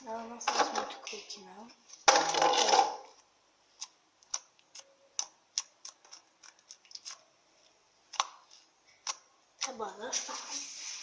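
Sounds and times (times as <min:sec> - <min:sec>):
slime clicking and popping: 0:03.8 - 0:07.2, 0:08.1 - 0:09.8.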